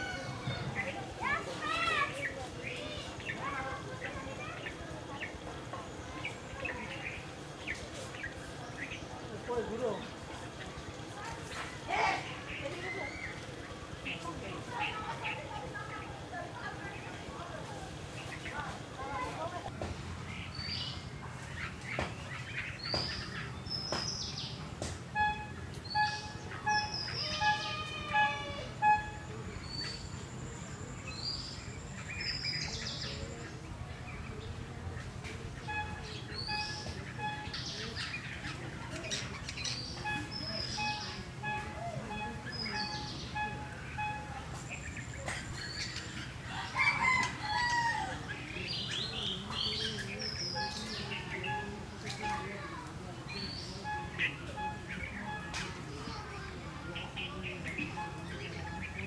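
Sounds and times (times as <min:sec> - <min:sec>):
birds chirping and whistling: 0:11.5 - 0:16.1, 0:20.2 - 0:52.7, 0:53.3 - 0:59.0.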